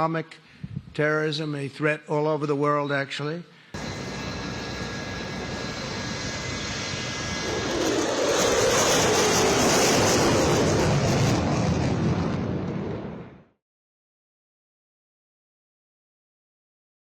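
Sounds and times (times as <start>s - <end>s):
fighter jet passing: 3.8s - 13.5s.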